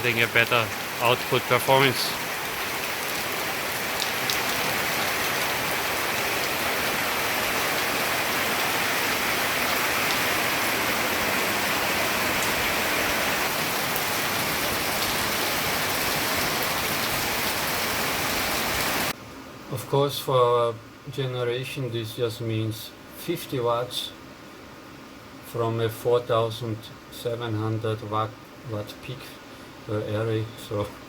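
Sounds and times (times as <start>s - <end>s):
heavy rain on hard surfaces: 0.0s - 19.2s.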